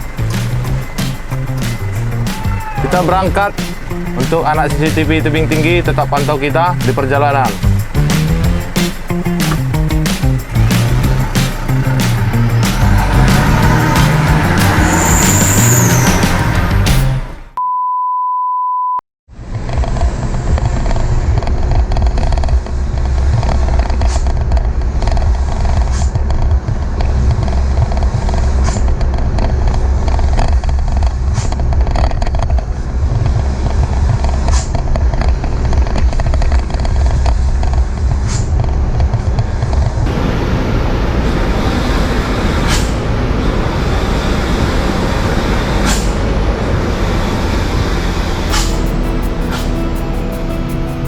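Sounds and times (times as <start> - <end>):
diesel truck engine rumble: 0.0 - 17.6, 19.4 - 51.0
road noise: 0.0 - 17.6, 19.3 - 51.0
electronic beep tone: 17.6 - 19.0.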